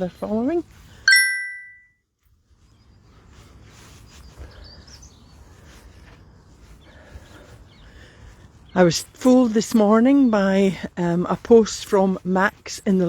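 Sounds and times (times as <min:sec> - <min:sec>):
faint outdoor background noise: 0:00.0 - 0:13.0
short bright chime: 0:01.1 - 0:01.9
birds chirping: 0:02.5 - 0:13.0.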